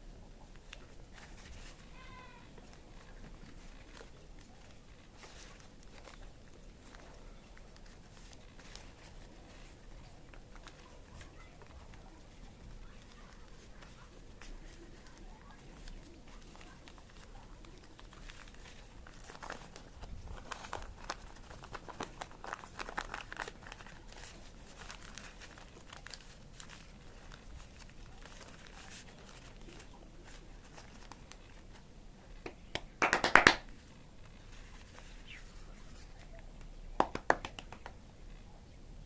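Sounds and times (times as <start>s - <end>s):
paper being folded and creased: 0.4s - 32.4s, 33.7s - 36.7s.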